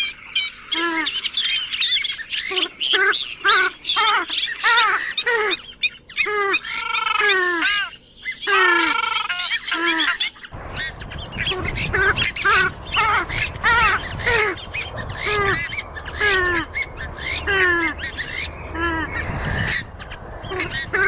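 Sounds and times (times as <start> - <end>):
birds calling harshly: 0.0 - 21.0
rushing noise: 10.5 - 21.0.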